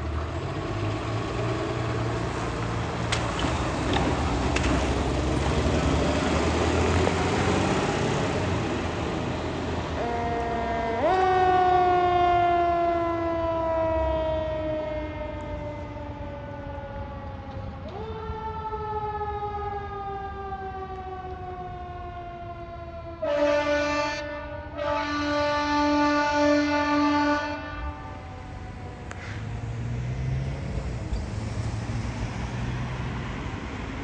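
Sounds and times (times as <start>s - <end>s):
fire engine siren wailing: 1.6s - 34.0s
air horn blasts: 23.2s - 28.2s.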